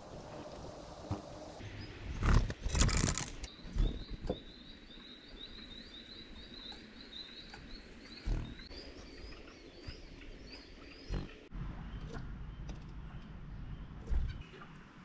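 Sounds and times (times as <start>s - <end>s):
songbird calling: 3.5s - 14.8s.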